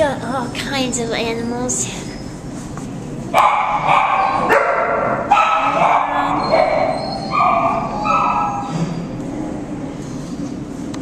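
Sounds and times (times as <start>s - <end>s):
dogs barking: 3.3s - 8.9s.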